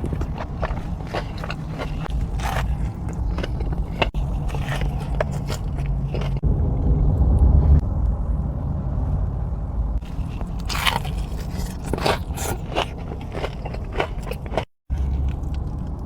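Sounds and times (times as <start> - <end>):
crunchy bites and chewing: 0.0 - 6.4, 10.0 - 16.0
low rumble: 0.0 - 11.9.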